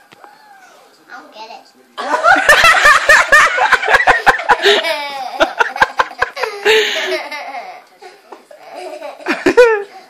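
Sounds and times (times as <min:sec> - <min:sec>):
people laughing loudly: 0:02.0 - 0:09.9.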